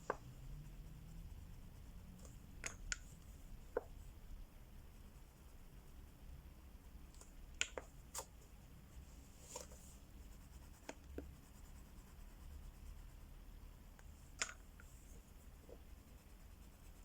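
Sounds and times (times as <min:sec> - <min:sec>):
light clicks and taps: 0:02.2 - 0:04.0, 0:07.1 - 0:08.3.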